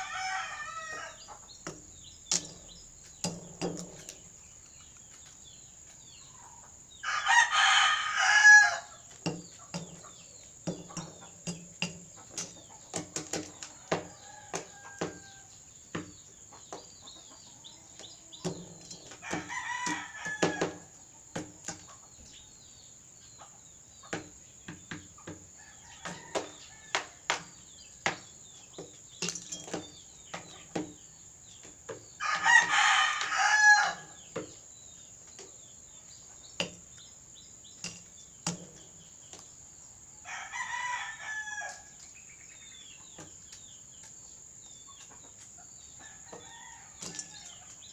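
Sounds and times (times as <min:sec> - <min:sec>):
rooster crowing: 0:00.0 - 0:01.3, 0:07.0 - 0:09.0, 0:13.8 - 0:15.5, 0:19.2 - 0:20.9, 0:32.2 - 0:34.2, 0:40.2 - 0:41.9.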